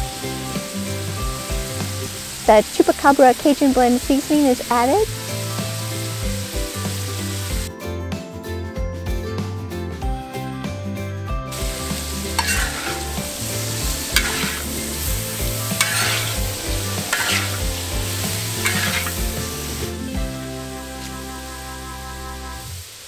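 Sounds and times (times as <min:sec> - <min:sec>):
food sizzling on a pan: 0:00.0 - 0:07.7, 0:11.5 - 0:23.0
metal spatula scraping pan: 0:12.2 - 0:19.8.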